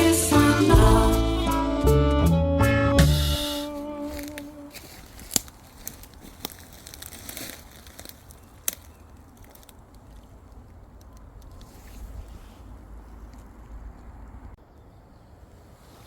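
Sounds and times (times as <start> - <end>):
music: 0.0 - 4.7
crinkling and rustling: 4.0 - 14.6
sharp crackling clicks: 5.2 - 11.7.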